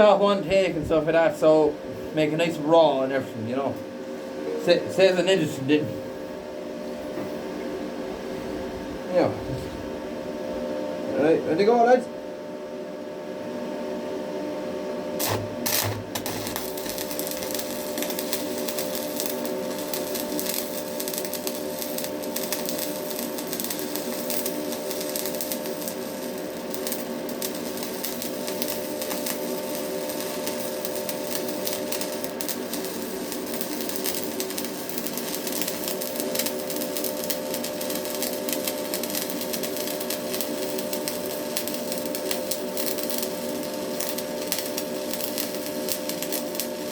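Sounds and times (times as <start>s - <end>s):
constant hum: 0.0s - 46.9s
welding arc crackling: 15.2s - 46.9s.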